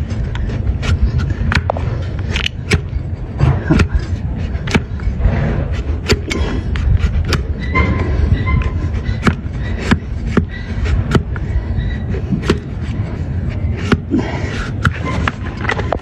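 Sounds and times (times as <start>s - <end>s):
steady low rumble: 0.0s - 16.0s
tool knocking on hoof: 9.2s - 11.4s.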